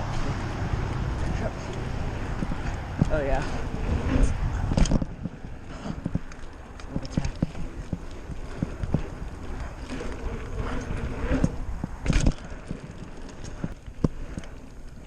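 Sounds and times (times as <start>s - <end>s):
bicycle rattling on rough ground: 0.0s - 15.0s
wind on microphone: 0.0s - 15.0s.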